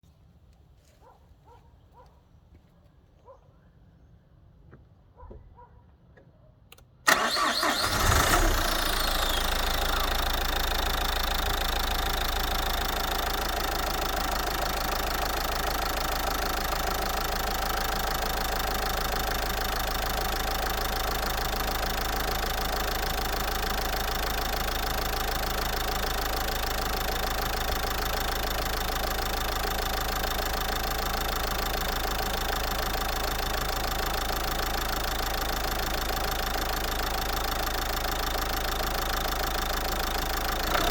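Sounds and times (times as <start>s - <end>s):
diesel engine starting and idling: 7.0s - 40.9s.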